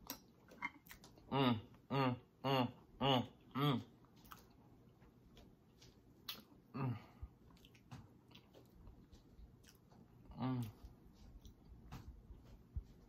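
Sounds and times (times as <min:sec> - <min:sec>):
person chewing fried fish: 0:04.0 - 0:11.9.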